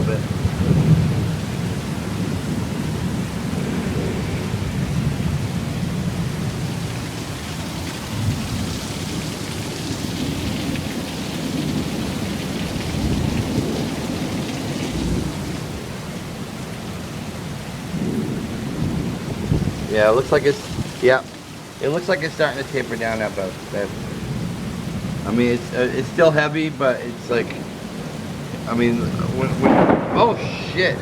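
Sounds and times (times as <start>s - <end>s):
heavy rain pouring: 0.0s - 31.0s
low rumble of thunder: 0.0s - 31.0s.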